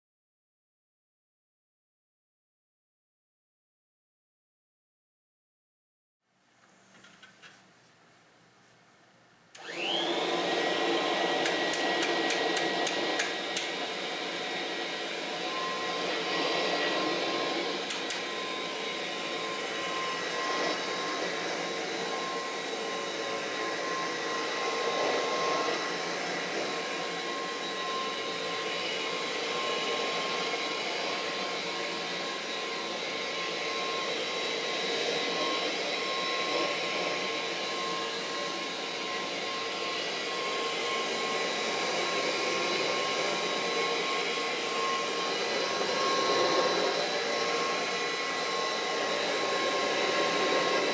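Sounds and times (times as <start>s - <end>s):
vacuum cleaner running: 9.6s - 50.9s.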